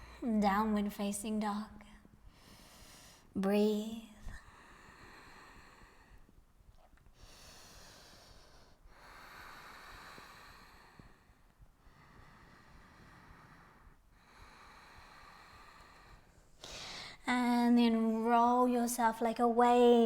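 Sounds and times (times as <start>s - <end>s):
deep breathing: 2.3s - 3.3s, 4.4s - 17.2s.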